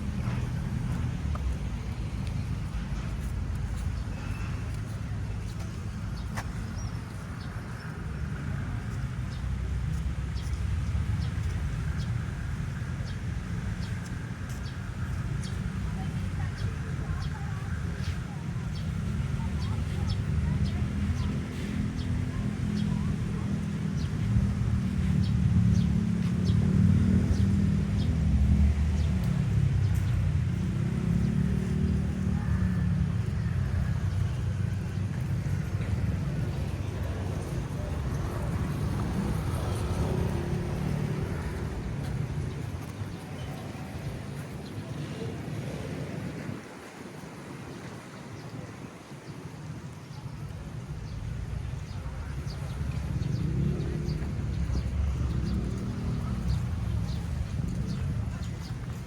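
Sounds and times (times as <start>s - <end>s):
low outdoor rumble: 0.0s - 13.2s, 50.1s - 59.0s.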